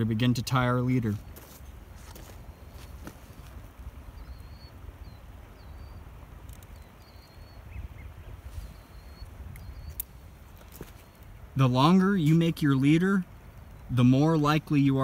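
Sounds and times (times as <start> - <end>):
small bird chirping: 1.1 - 11.5
fishing line spool clicks: 6.4 - 6.9.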